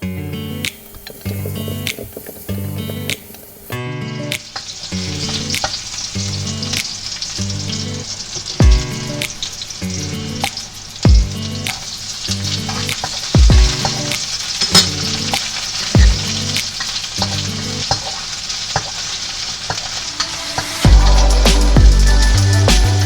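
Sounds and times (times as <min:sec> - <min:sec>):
background music with beat: 0:00.0 - 0:04.5, 0:08.6 - 0:11.9, 0:12.6 - 0:14.4, 0:15.2 - 0:16.7, 0:20.2 - 0:23.0
food sizzling in a pan: 0:00.0 - 0:23.0.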